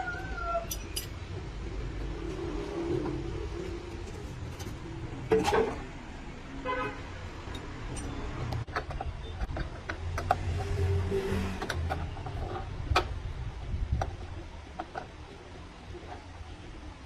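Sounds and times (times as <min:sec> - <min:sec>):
vehicle horn honk: 0:06.6 - 0:07.1.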